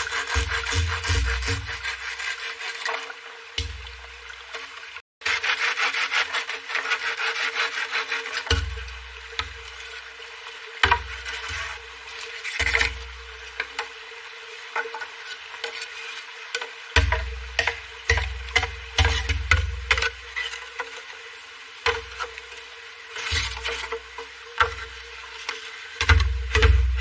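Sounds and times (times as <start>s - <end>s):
hand tool rasping on wood: 0.0s - 2.6s, 5.2s - 8.6s.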